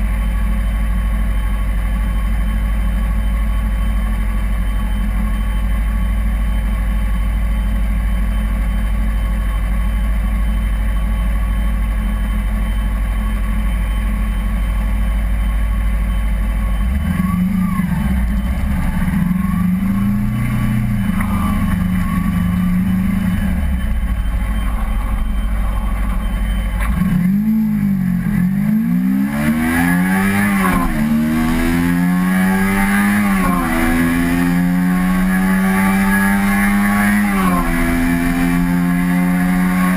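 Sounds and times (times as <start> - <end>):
motorcycle engine revving: 16.8 - 39.9.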